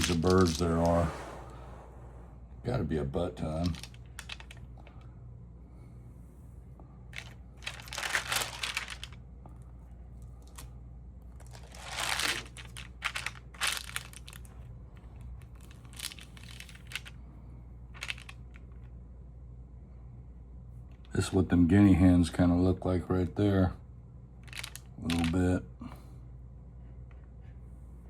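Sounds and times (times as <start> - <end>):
steady low hum: 0.0 - 28.0
album pages rustling: 7.2 - 9.2, 11.4 - 14.5, 18.0 - 18.3.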